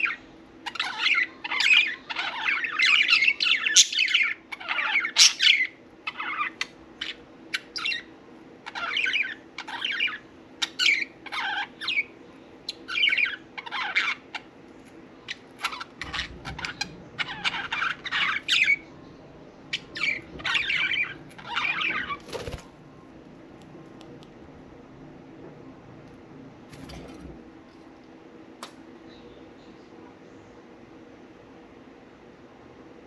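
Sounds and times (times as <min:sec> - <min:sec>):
budgerigars chirping: 0:00.0 - 0:08.1, 0:08.7 - 0:12.1, 0:12.7 - 0:14.5, 0:15.3 - 0:18.9, 0:19.7 - 0:22.2.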